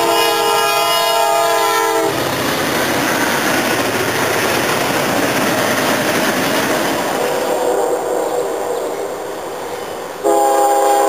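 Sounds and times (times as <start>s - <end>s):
locomotive air horn: 0.0s - 2.2s, 10.2s - 11.0s
freight cars rolling on rails: 0.0s - 11.0s.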